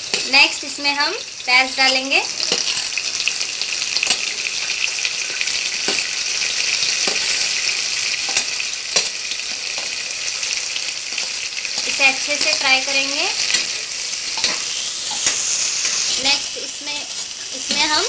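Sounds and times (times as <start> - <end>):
onions sizzling in hot oil: 0.0 - 18.0
steel spoon scraping plate: 13.4 - 16.2.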